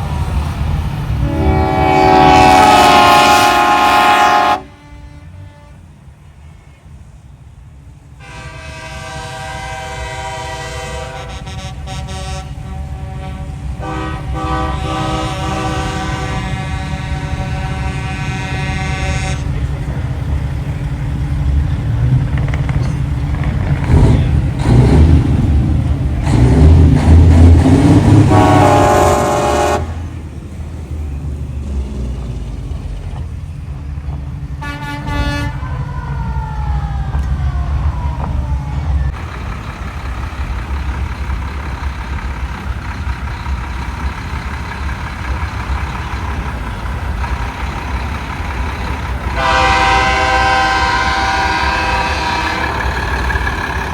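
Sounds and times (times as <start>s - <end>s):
truck diesel engines rumbling past: 0.0s - 53.9s
truck air horn blasting: 1.2s - 6.8s, 8.2s - 19.9s, 27.8s - 30.2s, 34.6s - 35.8s, 49.3s - 53.9s.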